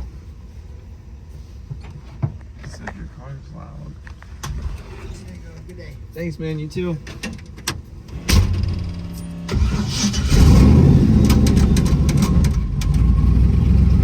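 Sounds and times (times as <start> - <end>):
vee eight engine running: 8.8 - 14.0.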